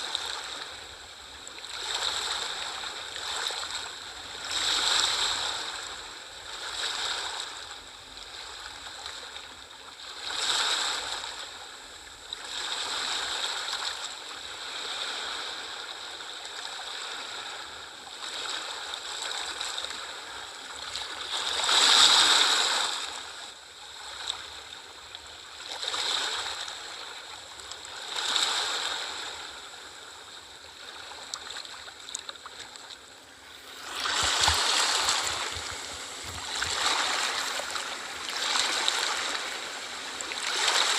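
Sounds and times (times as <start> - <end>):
ocean waves washing in: 32.6 - 40.9.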